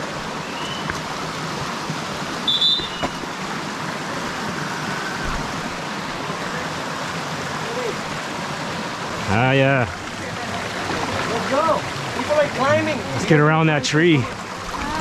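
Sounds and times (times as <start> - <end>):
river rushing: 0.0 - 15.0.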